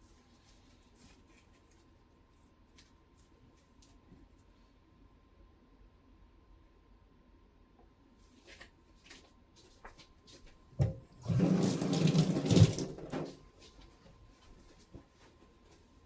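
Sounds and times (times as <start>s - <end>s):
tap water running into sink: 10.8s - 13.4s.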